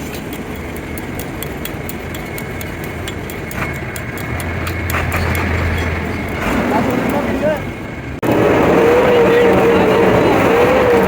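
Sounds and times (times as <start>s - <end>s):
fast even ticking: 0.0s - 6.5s
machine humming: 0.0s - 11.0s.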